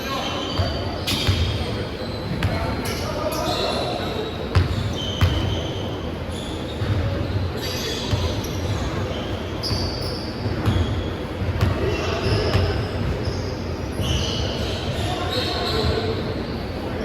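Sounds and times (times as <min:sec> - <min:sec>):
sneaker squeaks: 0:00.0 - 0:16.9
basketball bouncing on court: 0:00.6 - 0:02.6, 0:04.5 - 0:05.7, 0:06.8 - 0:07.2, 0:09.6 - 0:13.3.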